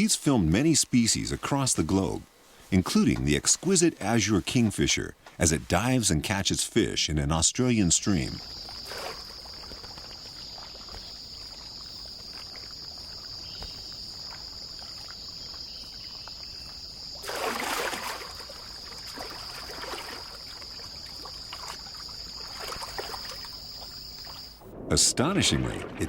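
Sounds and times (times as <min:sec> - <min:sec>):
stream trickling: 0:07.7 - 0:26.0
high insect drone: 0:08.1 - 0:24.9
bird splashing into water: 0:08.4 - 0:15.7, 0:17.1 - 0:26.0.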